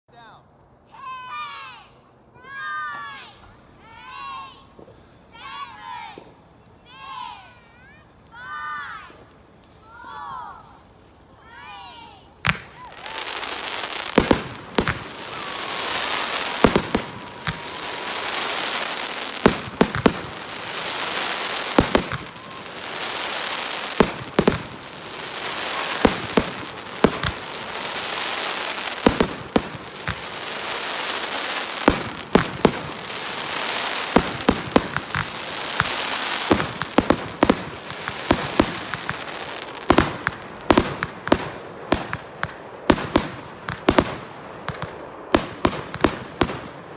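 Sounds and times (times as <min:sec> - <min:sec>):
fireworks crackling hiss: 0:03.0 - 0:46.9
fireworks bangs: 0:12.4 - 0:46.9.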